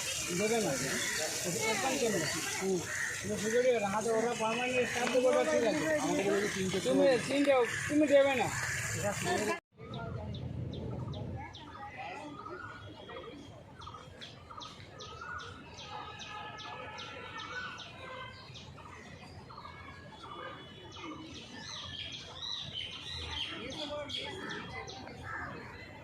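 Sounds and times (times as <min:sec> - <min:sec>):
birds chirping and whistling: 0:00.0 - 0:15.8.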